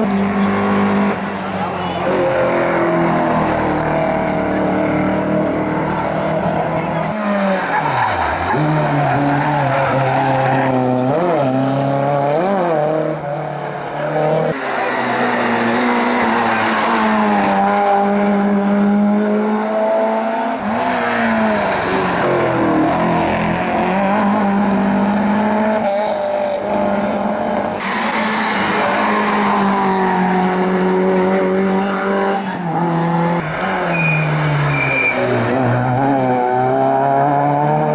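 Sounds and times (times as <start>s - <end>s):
race car engines revving: 0.0s - 37.9s
tyre squeal: 33.6s - 36.2s.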